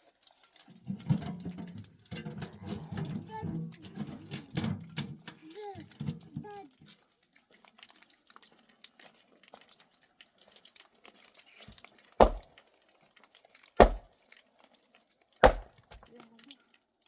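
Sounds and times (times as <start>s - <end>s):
heavy thuds: 12.2s - 12.4s, 13.8s - 14.0s, 15.4s - 16.0s.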